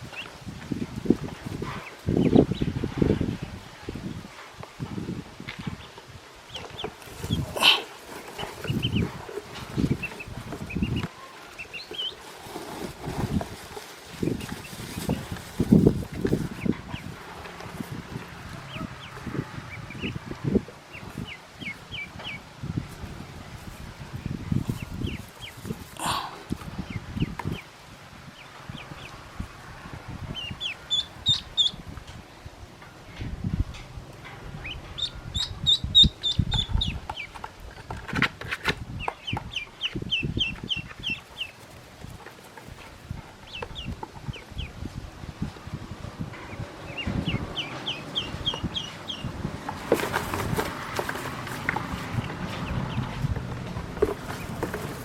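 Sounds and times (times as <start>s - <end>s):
duckling peeping: 1.2s - 3.0s, 5.7s - 13.5s, 14.2s - 17.2s, 17.8s - 27.7s, 30.2s - 32.1s, 34.4s - 38.3s, 38.9s - 44.9s, 46.4s - 55.0s
soft rustling and bumping: 49.7s - 55.0s.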